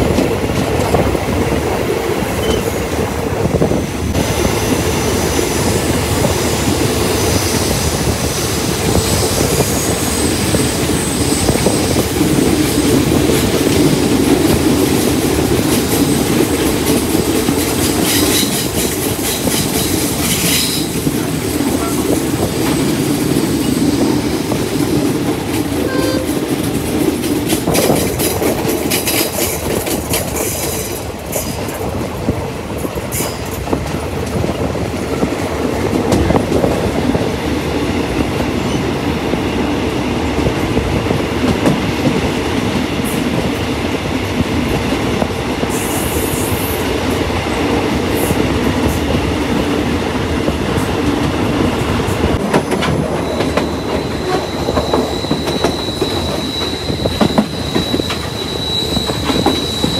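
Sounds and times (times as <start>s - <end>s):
train rumble: 0.0s - 59.9s
high wheel squeal: 8.8s - 12.0s, 53.2s - 59.9s
wheels clicking over rail joints: 11.5s - 37.1s, 52.1s - 59.9s.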